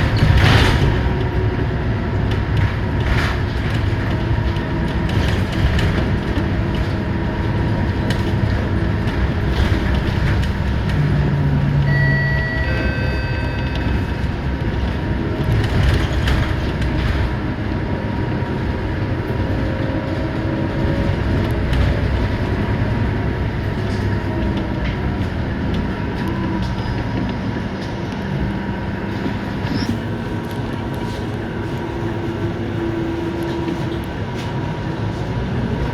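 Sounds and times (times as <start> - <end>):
interior rattles: 0.0 - 28.0
bus engine running: 0.0 - 35.9.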